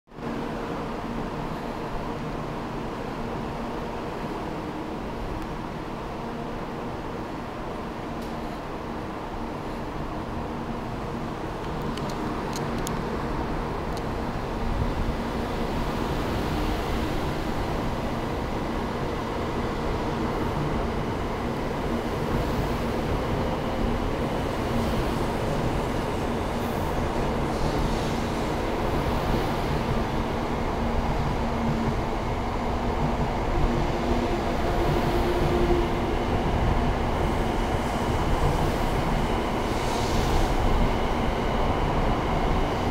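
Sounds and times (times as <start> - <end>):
train hiss: 24.4 - 31.0, 33.8 - 42.9.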